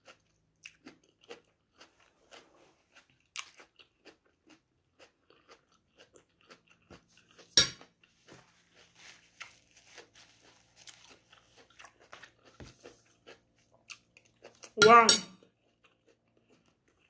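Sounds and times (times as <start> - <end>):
chewing with wet mouth clicks: 0.0 - 8.2, 10.9 - 14.8, 15.4 - 17.0.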